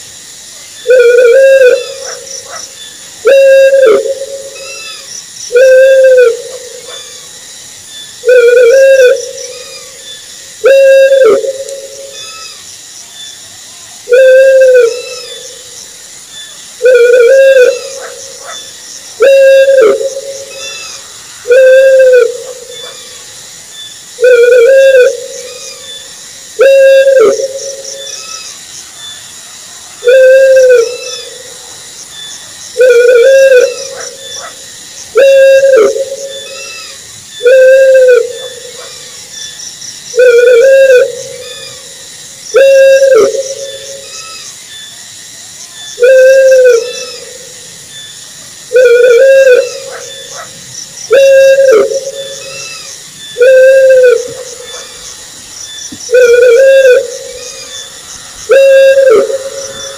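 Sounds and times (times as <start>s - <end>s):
owl hooting: 0.8s - 7.3s, 8.2s - 12.6s, 14.0s - 15.7s, 16.8s - 23.3s, 24.2s - 28.5s, 30.0s - 31.6s, 32.8s - 39.2s, 40.1s - 41.9s, 42.5s - 44.5s, 46.0s - 47.6s, 48.7s - 55.2s, 56.1s - 59.9s.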